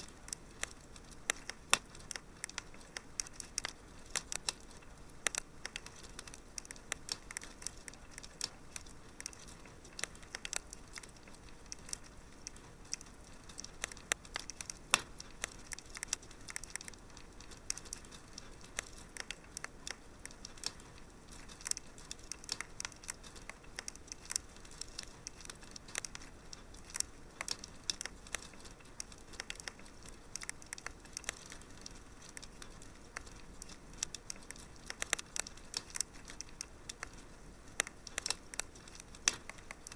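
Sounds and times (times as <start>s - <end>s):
soft hiss: 0.0s - 39.9s
wood fire crackling: 0.0s - 39.9s.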